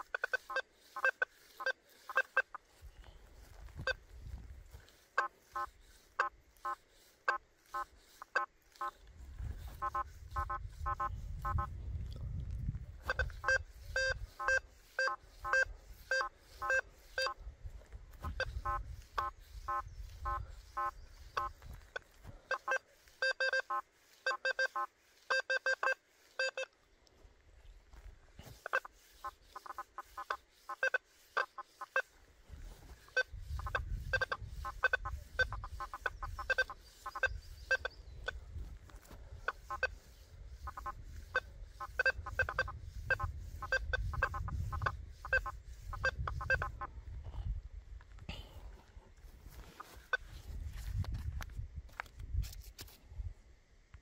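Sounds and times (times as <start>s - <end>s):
metal detector beeps: 0.0s - 2.7s, 3.8s - 4.1s, 9.6s - 11.8s, 13.0s - 17.4s, 18.2s - 26.8s, 28.5s - 32.2s, 32.9s - 38.4s, 39.4s - 46.9s.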